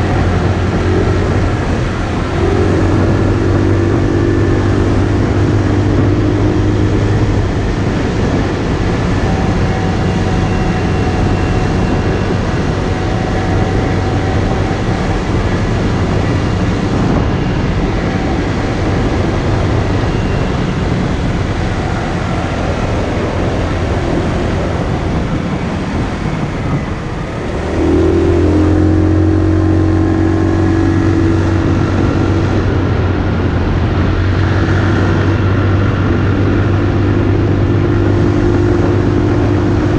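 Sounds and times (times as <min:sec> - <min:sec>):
motorcycle engine running: 0:00.0 - 0:39.9
wind rush over microphone: 0:00.0 - 0:39.9.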